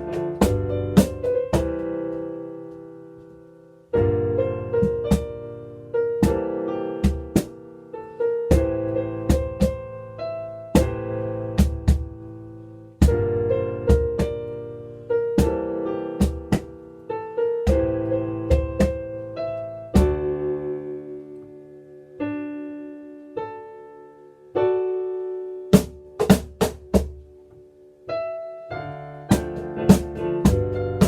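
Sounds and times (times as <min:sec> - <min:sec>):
cajon strikes: 0:00.0 - 0:01.9, 0:04.8 - 0:05.3, 0:07.0 - 0:07.6, 0:08.5 - 0:09.8, 0:11.6 - 0:12.1, 0:16.2 - 0:16.8, 0:25.8 - 0:27.2, 0:29.3 - 0:31.0
piano chords and melody: 0:00.0 - 0:31.0.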